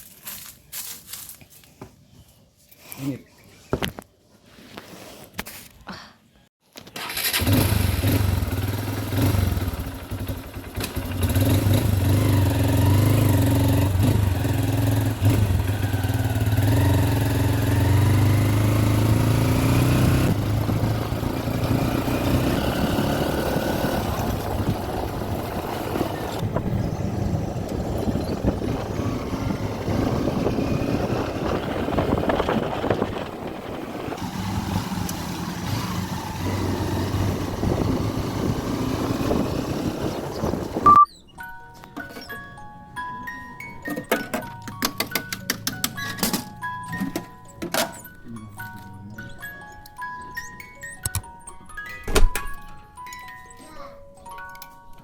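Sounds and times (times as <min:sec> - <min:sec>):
motorcycle engine running: 0:07.3 - 0:41.0.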